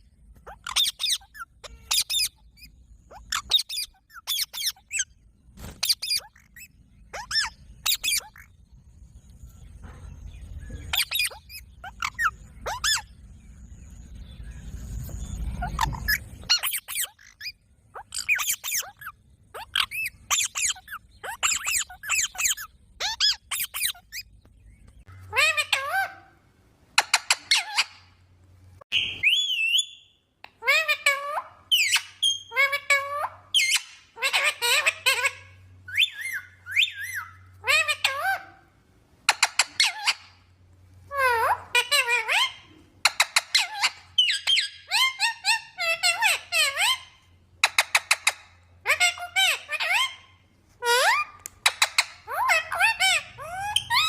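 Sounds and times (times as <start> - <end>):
parrot shrill calls: 0.5 - 5.1, 5.8 - 8.5, 10.8 - 13.1, 15.6 - 24.2, 25.2 - 26.3, 27.0 - 28.1, 28.9 - 38.7, 39.3 - 40.4, 41.1 - 54.0
parrot whistles: 28.9 - 30.1.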